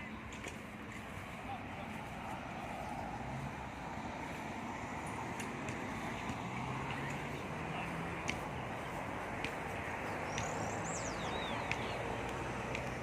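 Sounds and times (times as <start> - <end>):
bird chirps: 10.1 - 12.2.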